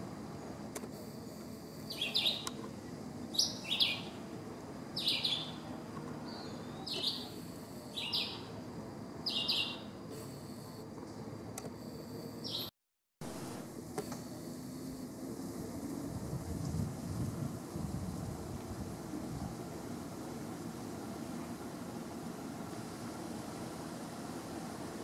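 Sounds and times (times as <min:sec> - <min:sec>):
songbird chirps: 0:01.8 - 0:04.2, 0:04.9 - 0:08.6, 0:09.2 - 0:10.0, 0:12.4 - 0:12.7.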